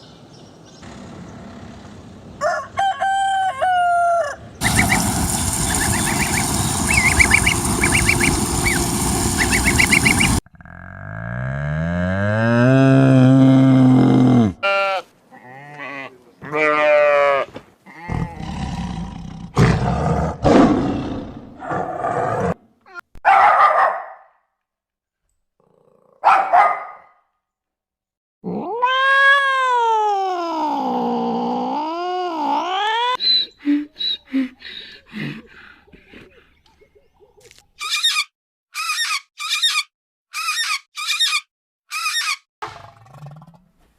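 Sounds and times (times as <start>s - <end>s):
animal growling and roaring: 10.4s - 14.6s, 17.9s - 22.6s, 42.6s - 43.7s
wavering animal call: 32.4s - 35.1s.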